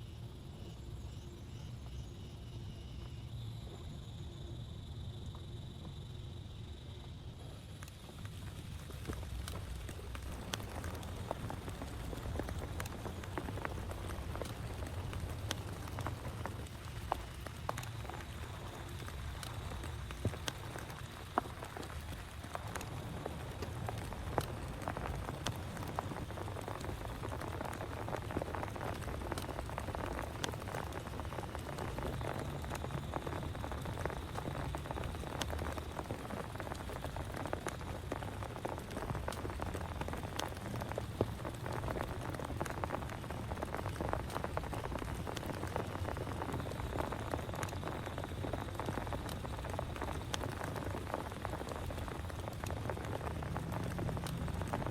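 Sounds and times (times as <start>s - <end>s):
raindrops tapping a surface: 5.3s - 54.9s
heavy rain: 7.0s - 54.9s.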